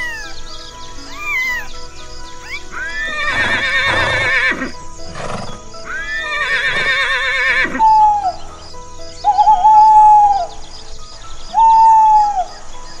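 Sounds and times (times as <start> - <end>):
soft background music: 0.0 - 13.0
horse whinnying: 2.5 - 8.3.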